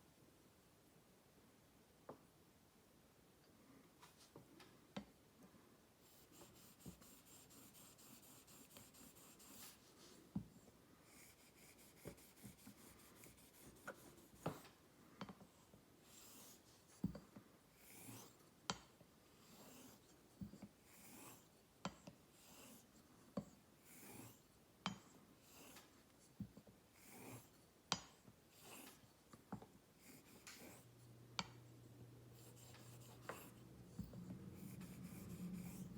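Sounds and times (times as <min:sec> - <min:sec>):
razor scraping on honing stone: 0:17.8 - 0:18.4, 0:20.9 - 0:21.5, 0:22.4 - 0:22.9, 0:23.9 - 0:24.4, 0:27.0 - 0:27.5, 0:28.5 - 0:29.0.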